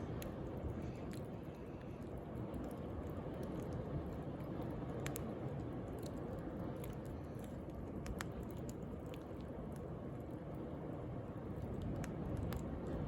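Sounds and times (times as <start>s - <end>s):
wood fire crackling and popping: 0.0s - 10.6s, 11.6s - 13.0s.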